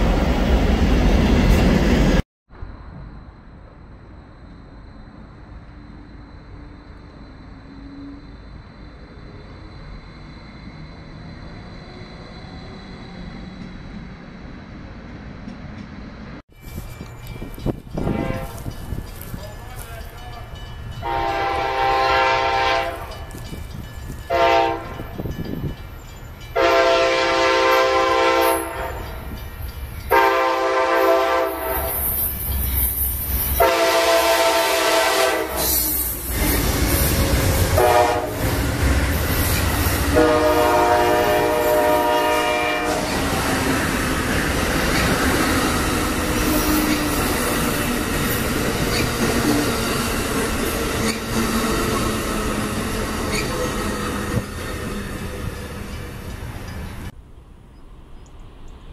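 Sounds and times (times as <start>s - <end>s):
train engine and wheels rumbling: 0.0s - 58.9s
train air horn blasts: 18.0s - 18.7s, 21.0s - 23.3s, 24.3s - 25.2s, 26.6s - 29.1s, 30.1s - 32.2s, 33.6s - 36.1s, 37.7s - 38.5s, 40.1s - 43.2s.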